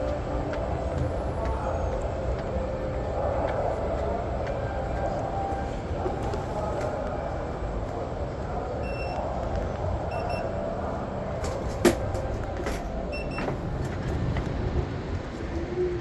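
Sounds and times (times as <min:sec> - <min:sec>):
train rumbling: 0:00.0 - 0:16.0
faint high beeps: 0:08.8 - 0:09.3, 0:10.1 - 0:10.5.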